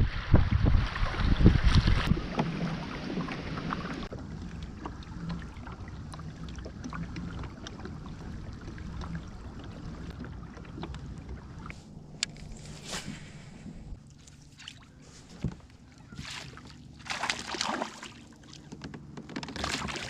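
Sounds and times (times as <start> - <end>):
wind buffeting microphone: 0.0 - 14.0
water lapping against kayak hull: 0.0 - 20.0.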